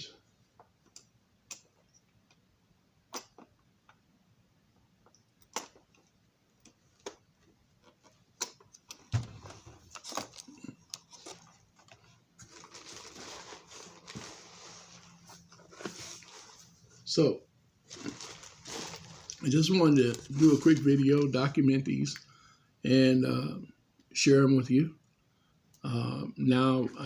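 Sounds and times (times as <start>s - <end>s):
rustling: 9.4s - 17.1s, 17.8s - 21.3s.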